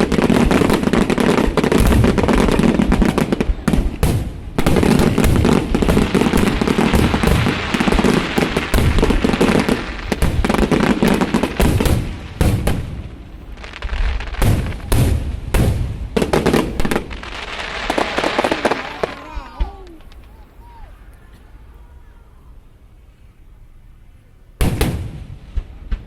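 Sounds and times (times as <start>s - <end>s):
fireworks crackling bangs: 0.0s - 20.8s, 24.6s - 26.0s.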